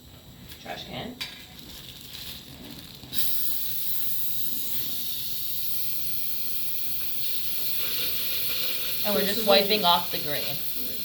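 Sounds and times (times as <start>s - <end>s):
air-water syringe hissing: 2.4s - 11.0s.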